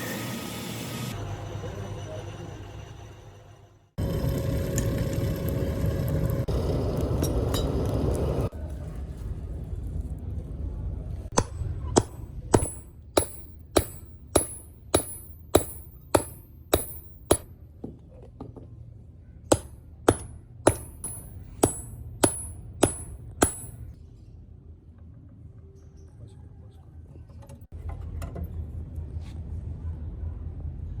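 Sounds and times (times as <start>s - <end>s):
hammer blows on steel anvil: 11.3s - 17.5s, 19.5s - 24.0s.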